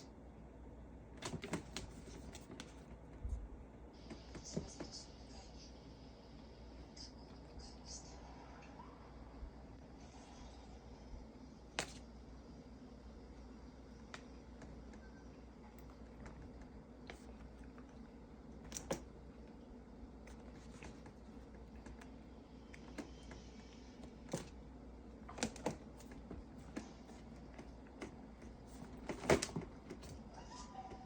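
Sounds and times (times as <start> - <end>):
faint steady hum: 0.0 - 31.0
cat paws tapping and clicking: 20.2 - 24.6.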